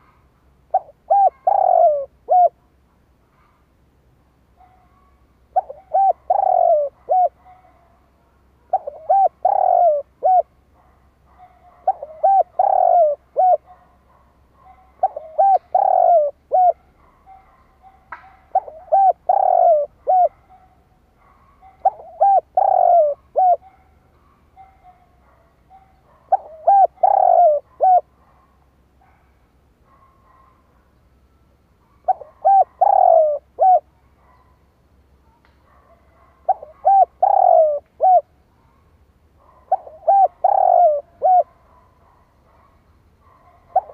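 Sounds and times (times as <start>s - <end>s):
dove cooing: 0.0s - 2.7s, 4.6s - 8.0s, 8.6s - 10.6s, 11.3s - 23.9s, 24.6s - 28.4s, 31.8s - 34.5s, 36.0s - 38.4s, 39.4s - 43.9s.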